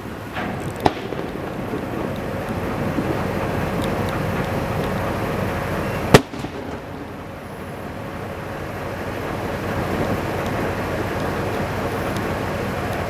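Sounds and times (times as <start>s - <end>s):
fireworks bursting: 0.0s - 11.7s
loud firework bang: 0.3s - 3.8s, 6.1s - 7.6s.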